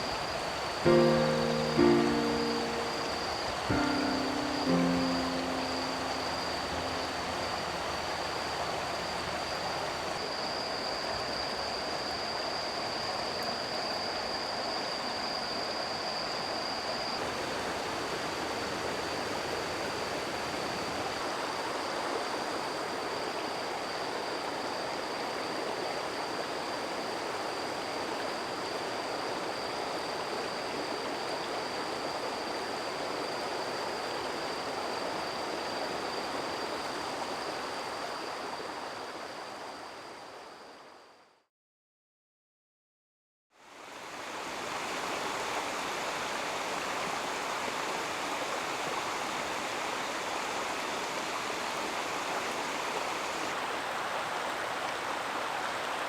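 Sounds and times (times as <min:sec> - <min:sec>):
thin high-pitched tone: 0:00.9 - 0:08.1.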